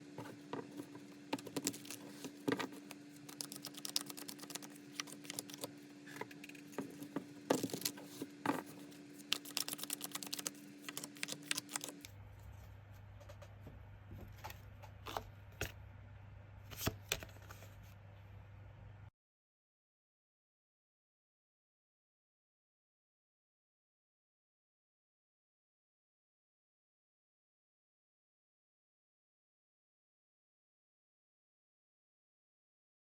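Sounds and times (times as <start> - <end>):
cards shuffling: 1.4 - 12.1.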